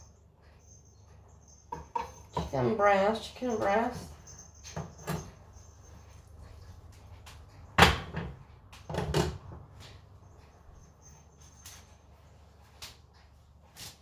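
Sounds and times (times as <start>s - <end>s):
knocks and clatter in kitchen: 1.7s - 10.1s.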